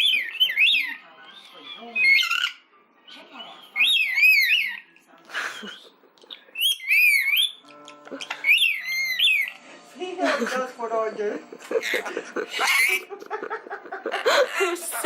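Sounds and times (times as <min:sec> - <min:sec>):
lorikeet warbling whistle calls: 0:00.0 - 0:01.0, 0:03.4 - 0:04.8, 0:06.6 - 0:07.6, 0:08.4 - 0:09.5.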